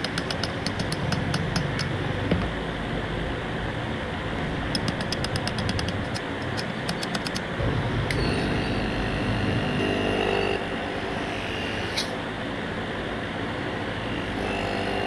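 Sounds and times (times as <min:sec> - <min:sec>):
rapid light tapping: 0:00.0 - 0:02.6, 0:04.7 - 0:07.6
steady high whine: 0:00.0 - 0:15.0
steady mechanical hum: 0:00.0 - 0:15.0.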